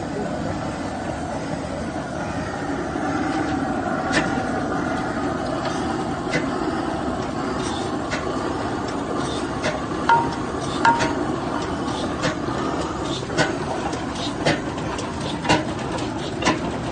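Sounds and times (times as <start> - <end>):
engine running: 0.0 - 16.9.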